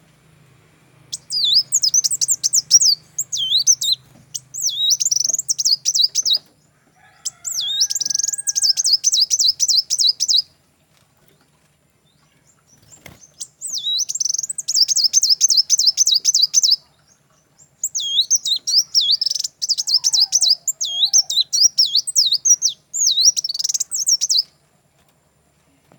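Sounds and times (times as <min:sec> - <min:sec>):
faint low hum: 0:00.0 - 0:25.9
songbird high chirping: 0:01.0 - 0:10.6, 0:11.3 - 0:24.6.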